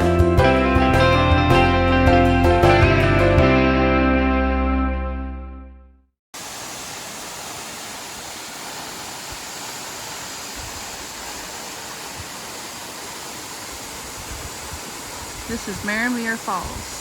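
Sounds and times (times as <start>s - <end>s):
guitar chord: 0.0s - 5.9s
waterfall rushing: 6.4s - 17.0s.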